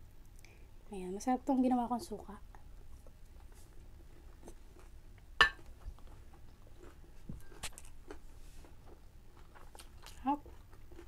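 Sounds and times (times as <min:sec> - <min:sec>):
person chewing food: 0:03.0 - 0:11.0
ceramic bowl clinking: 0:05.4 - 0:05.7.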